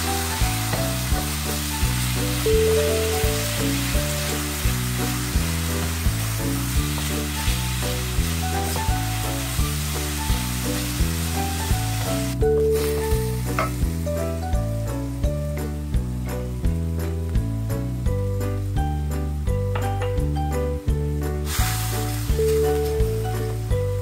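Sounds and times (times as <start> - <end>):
chicken sizzling in a frying pan: 0.0 - 14.9, 21.4 - 24.0
music with a steady beat: 0.0 - 24.0.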